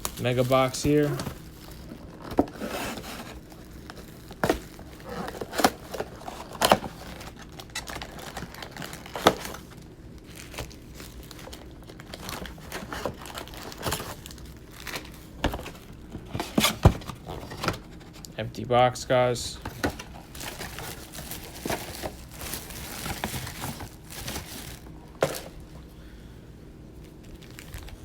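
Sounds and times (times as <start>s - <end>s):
plastic wrap crinkling: 0.0s - 16.0s, 19.6s - 25.7s, 27.0s - 28.0s
cardboard box tearing: 0.6s - 9.6s.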